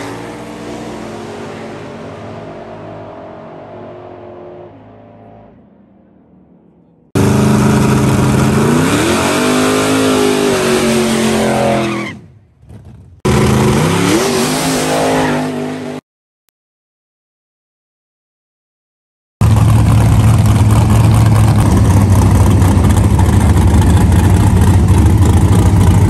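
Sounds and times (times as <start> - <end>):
car engine: 0.0 - 16.0, 19.4 - 26.0
drag racing car engine accelerating: 7.1 - 12.0, 13.3 - 16.0, 19.4 - 26.0.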